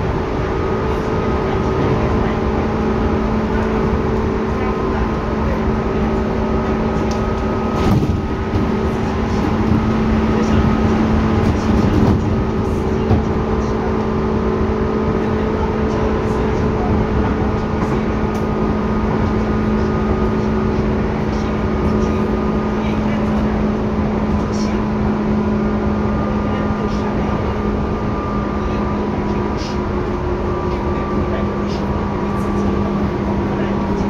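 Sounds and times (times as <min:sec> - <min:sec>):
train interior rumble: 0:00.0 - 0:34.0.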